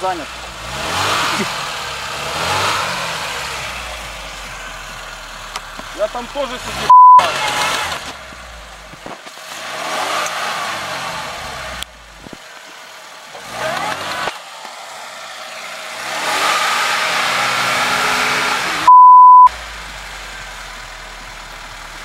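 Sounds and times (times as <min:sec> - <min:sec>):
car engine revving: 0:00.0 - 0:22.0
censor beep: 0:06.9 - 0:07.3, 0:18.9 - 0:19.5.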